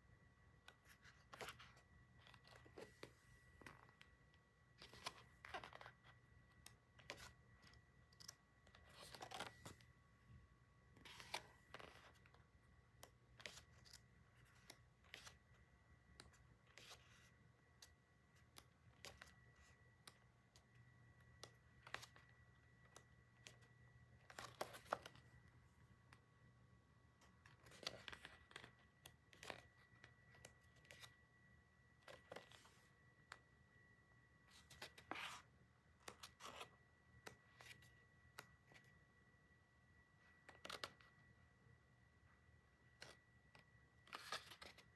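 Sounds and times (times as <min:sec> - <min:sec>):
faint high whine: 0:00.0 - 0:44.9.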